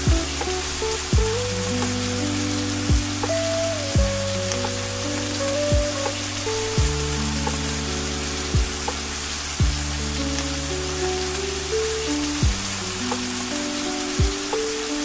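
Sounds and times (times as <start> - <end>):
rain hissing: 0.0 - 15.0
slow ambient music: 0.0 - 15.0
soft deep thuds: 0.1 - 0.5, 1.1 - 2.0, 2.9 - 3.4, 4.0 - 4.8, 5.7 - 6.2, 6.8 - 7.6, 8.6 - 9.0, 9.6 - 10.0, 12.4 - 13.2.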